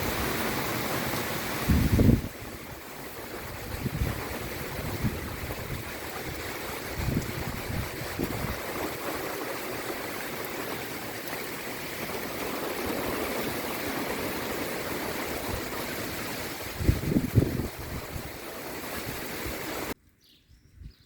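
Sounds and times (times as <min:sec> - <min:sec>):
heavy rain pouring: 0:00.0 - 0:20.0
wind buffeting microphone: 0:01.6 - 0:09.2, 0:12.9 - 0:19.9.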